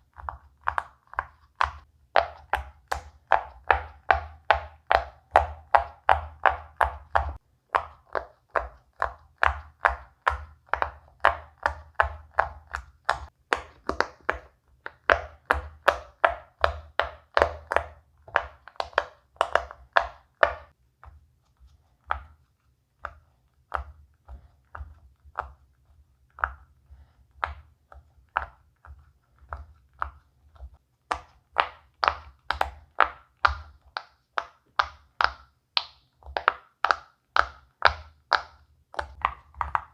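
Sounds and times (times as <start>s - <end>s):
fidget toy bubbles popping: 6.9s - 20.7s.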